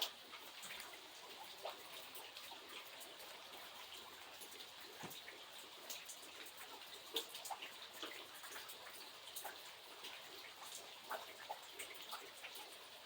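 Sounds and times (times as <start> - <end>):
light rain falling: 0.0 - 13.0.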